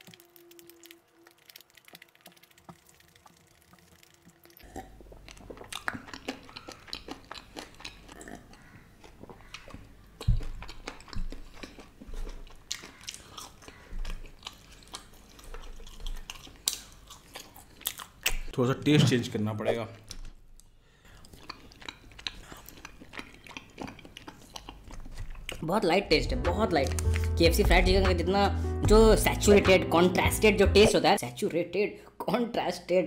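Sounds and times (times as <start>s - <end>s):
crunchy chewing: 0.0s - 18.5s, 20.0s - 25.6s.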